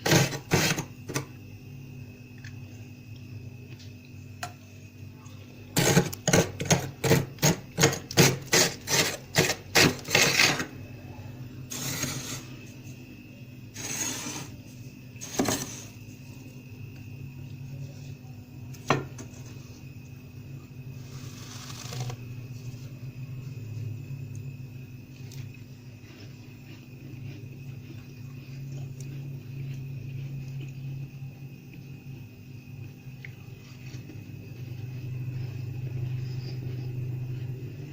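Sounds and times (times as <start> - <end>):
plastic card scraping frost: 21.1 - 22.2.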